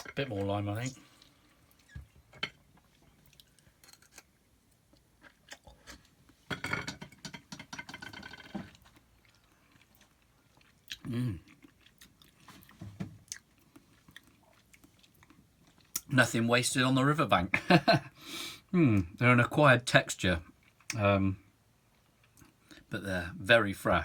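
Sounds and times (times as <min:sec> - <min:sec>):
man chewing: 0:02.7 - 0:04.2, 0:04.9 - 0:06.4, 0:08.1 - 0:16.1
man humming: 0:11.1 - 0:11.4.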